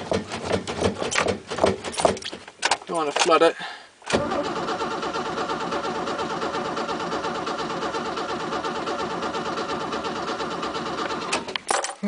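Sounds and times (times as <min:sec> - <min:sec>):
engine cranking by starter motor: 0:04.0 - 0:11.7.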